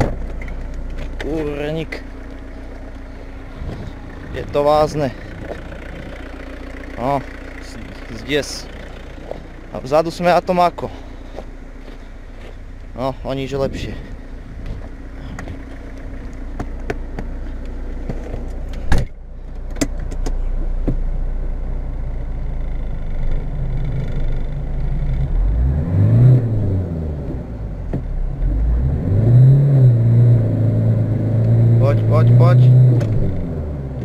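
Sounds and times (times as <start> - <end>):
car door shutting: 0.0 - 1.6, 18.0 - 21.0, 32.9 - 33.4
diesel engine idling and revving: 0.0 - 34.0.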